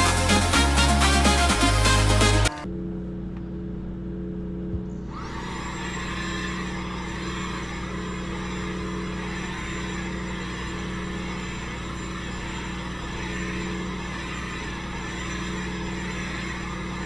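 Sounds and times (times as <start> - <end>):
vacuum cleaner running: 5.2 - 17.0.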